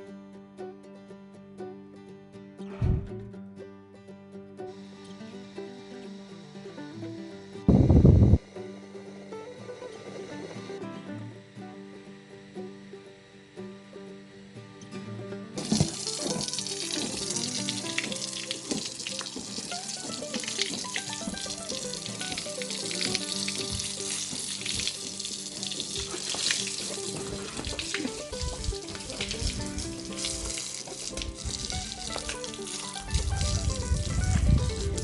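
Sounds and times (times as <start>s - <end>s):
background music: 0.0s - 35.0s
tap water running into sink: 15.6s - 35.0s.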